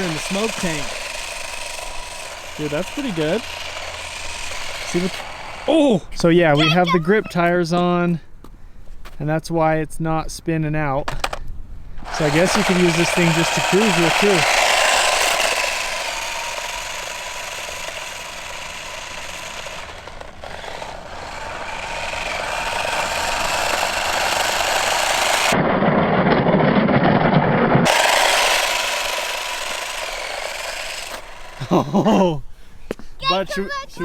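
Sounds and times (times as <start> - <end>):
electric motor whine: 0.0 - 5.9, 12.0 - 26.4, 27.1 - 31.7
tires hissing on ground: 0.0 - 6.0, 12.0 - 25.6.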